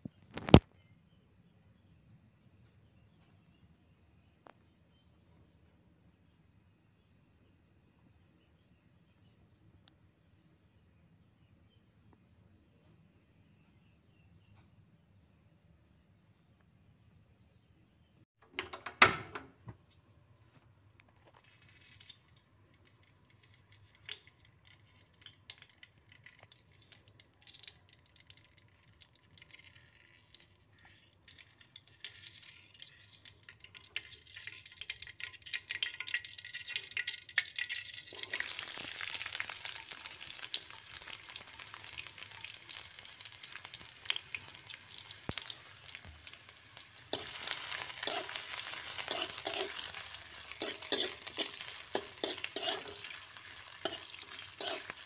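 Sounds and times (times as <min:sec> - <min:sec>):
oil crackling and popping: 0:00.2 - 0:00.8, 0:20.5 - 0:55.0
onion sizzling in oil: 0:29.0 - 0:55.0.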